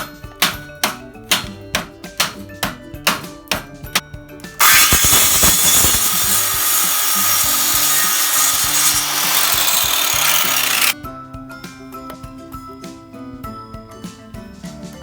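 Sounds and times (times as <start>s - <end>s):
power tool rasping on metal: 4.6s - 11.0s.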